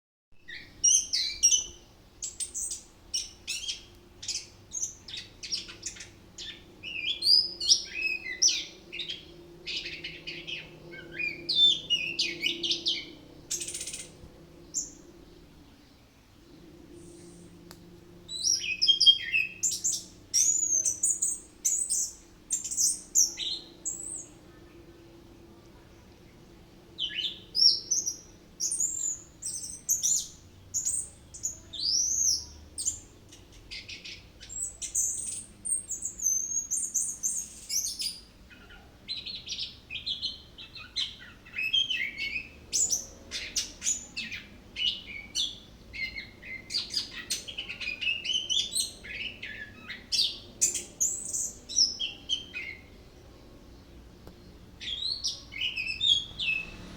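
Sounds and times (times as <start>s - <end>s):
thrush singing whistled phrases: 54.8s - 56.9s.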